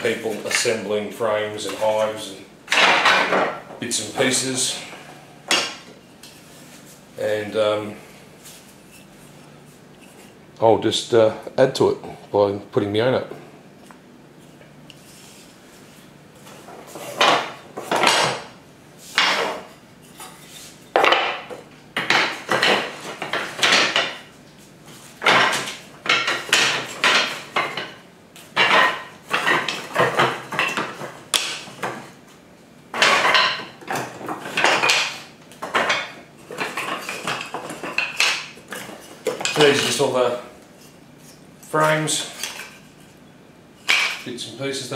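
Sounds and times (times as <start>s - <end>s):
wooden parts clattering: 2.7s - 4.4s, 16.5s - 18.5s, 19.1s - 24.4s, 25.0s - 32.2s, 32.9s - 40.2s, 41.7s - 43.1s, 43.8s - 44.3s.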